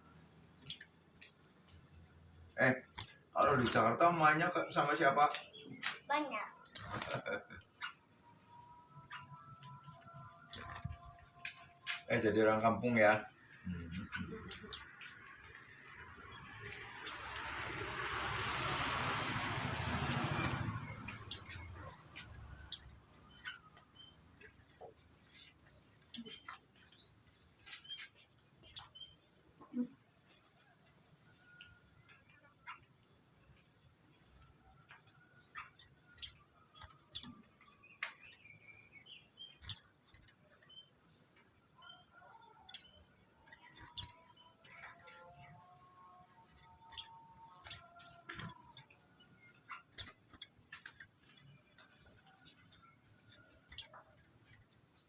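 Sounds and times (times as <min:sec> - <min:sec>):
birds chirping sharply: 0:00.0 - 0:30.7, 0:31.4 - 0:55.0
high insect drone: 0:10.2 - 0:24.4
broad rushing noise: 0:16.5 - 0:22.3.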